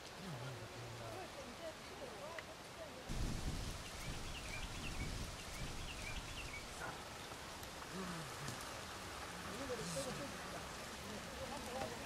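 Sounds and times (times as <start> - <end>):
wind rumble on microphone: 3.1 - 6.8
birds chirping: 3.5 - 7.5.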